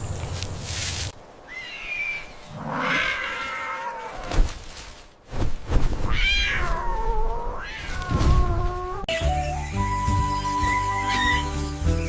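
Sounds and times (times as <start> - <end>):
high-pitched animal cries: 10.5 - 11.7.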